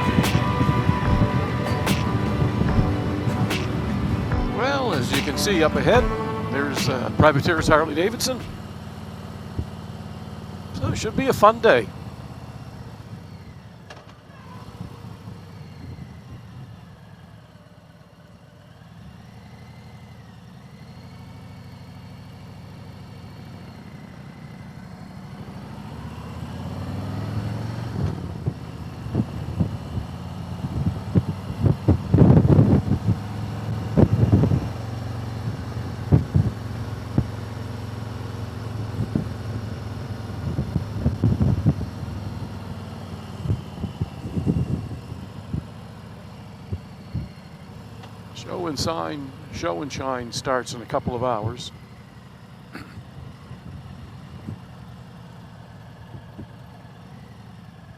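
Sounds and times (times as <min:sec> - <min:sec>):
sharp bursts of noise: 0:00.0 - 0:08.8
vehicle engine droning: 0:00.0 - 0:57.9.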